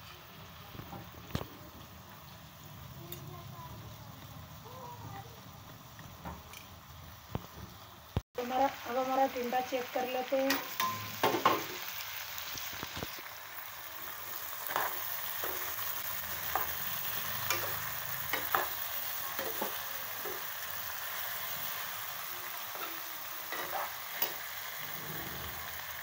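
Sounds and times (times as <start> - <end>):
vegetables sizzling in oil: 0.0 - 26.0
spatula scraping a pan: 22.6 - 25.8.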